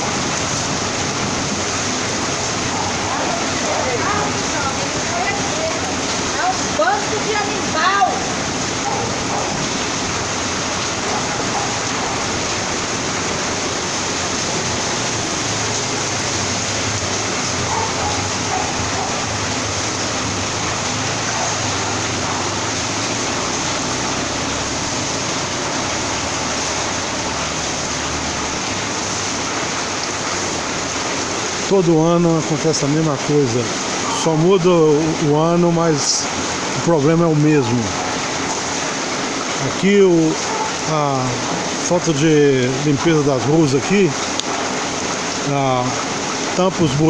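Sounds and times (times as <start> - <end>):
heavy rain: 0.0 - 47.0
running water: 0.0 - 47.0.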